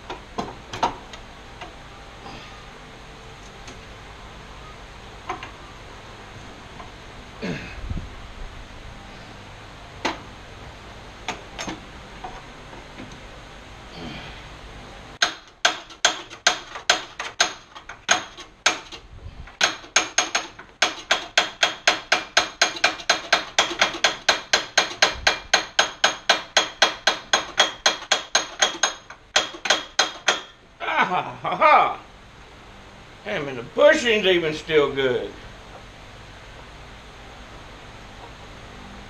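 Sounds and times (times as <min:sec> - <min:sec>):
hammer striking metal: 0:19.6 - 0:30.6.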